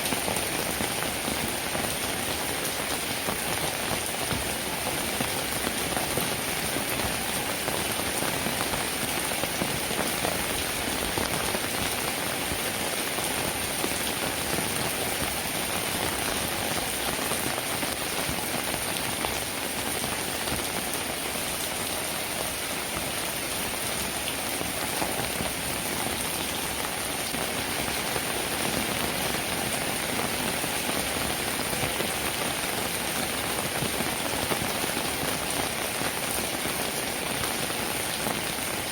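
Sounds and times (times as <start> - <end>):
rain pattering on a surface: 0.0 - 38.9.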